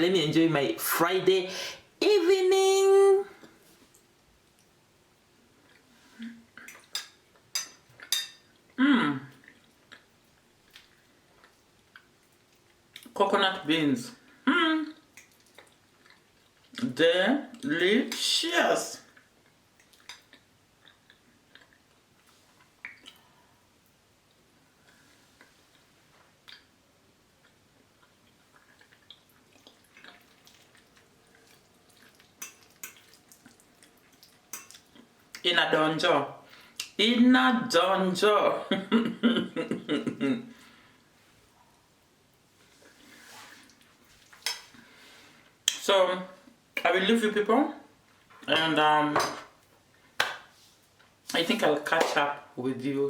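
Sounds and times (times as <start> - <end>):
cutlery clinking on a plate: 6.7 - 8.5
person humming: 8.8 - 9.3.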